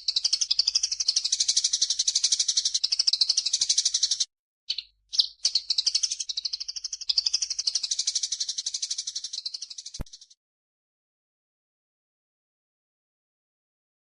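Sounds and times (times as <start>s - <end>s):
songbird chattering chirps: 0.0s - 10.3s.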